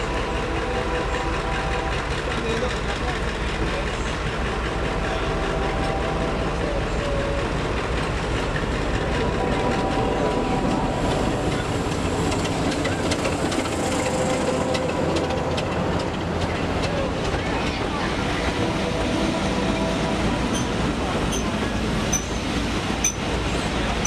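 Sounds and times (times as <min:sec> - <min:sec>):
diesel locomotive engine: 0:00.0 - 0:24.0
wheels clicking over rail joints: 0:11.1 - 0:18.1, 0:20.4 - 0:24.0.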